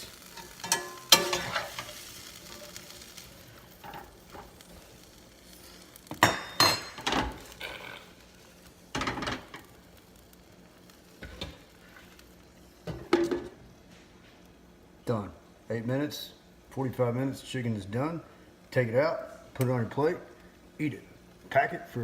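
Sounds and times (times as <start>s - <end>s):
skillet faint sizzling: 0.0s - 22.0s
cookware clinking: 0.4s - 1.9s, 6.2s - 7.4s.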